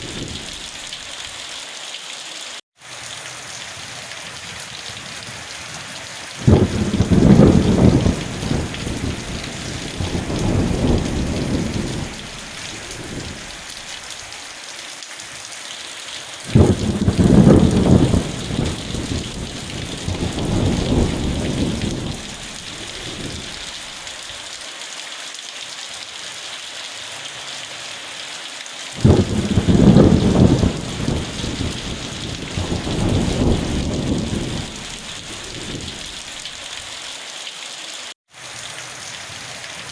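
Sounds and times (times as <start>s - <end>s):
thunder rumbling: 0.0s - 0.9s, 4.1s - 13.9s, 16.5s - 23.8s, 29.0s - 36.3s
rain hissing: 0.0s - 39.9s.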